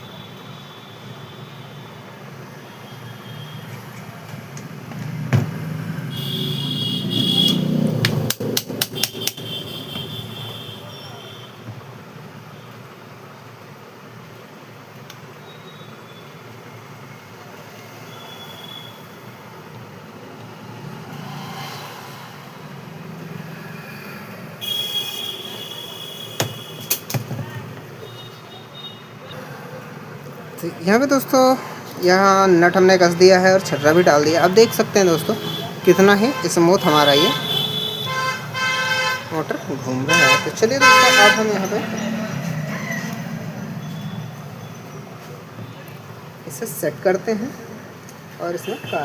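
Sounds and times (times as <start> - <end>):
knock: 5.3 - 5.6
sharp metallic taps: 7.4 - 10.6
metal rubbing squeal: 41.4 - 44.9.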